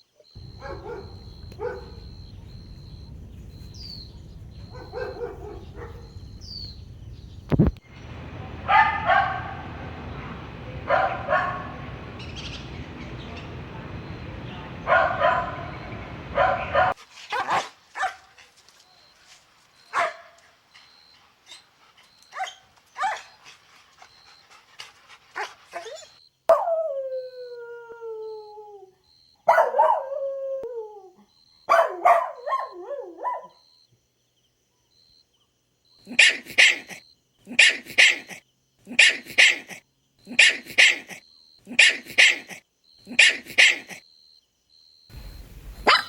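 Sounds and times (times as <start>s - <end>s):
dog yelping: 0.4s - 18.3s, 19.9s - 20.4s, 21.5s - 23.5s, 25.4s - 26.9s, 29.5s - 30.2s, 31.7s - 33.6s, 36.1s - 44.0s, 45.2s - 46.0s
dogs yipping and barking: 0.4s - 19.1s, 19.8s - 27.0s, 29.5s - 30.3s, 31.7s - 33.6s, 36.1s - 44.0s, 45.1s - 46.0s
background hiss: 0.4s - 26.0s, 45.1s - 46.0s
dog whining: 25.4s - 26.7s, 36.1s - 44.0s, 45.2s - 46.0s.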